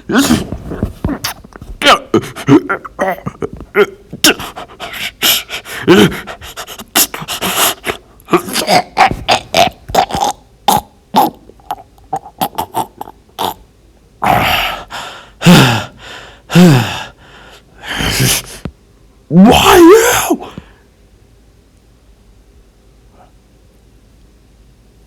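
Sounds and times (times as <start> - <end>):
cartoon fight grunts: 0.1 - 4.7, 5.7 - 13.1, 19.3 - 20.6.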